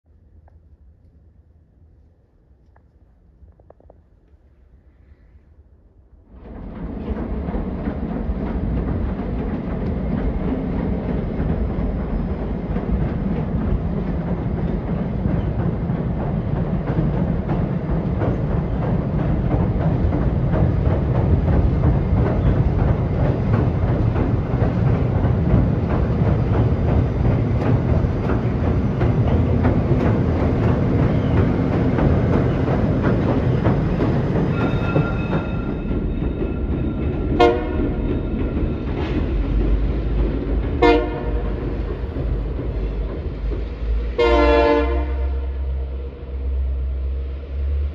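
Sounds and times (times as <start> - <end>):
locomotives rumbling across a bridge: 6.3 - 47.9
train horn calls: 37.4 - 38.0, 40.8 - 41.6, 44.2 - 45.9.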